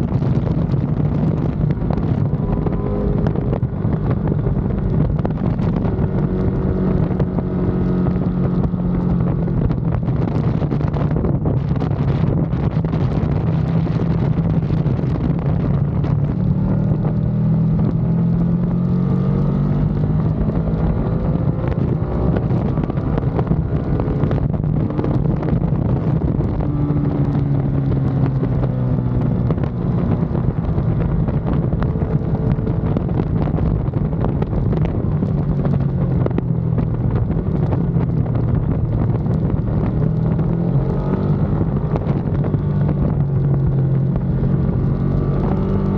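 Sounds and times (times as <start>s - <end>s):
motorcycle engine accelerating: 0.0s - 45.9s
wind on microphone: 0.0s - 45.9s.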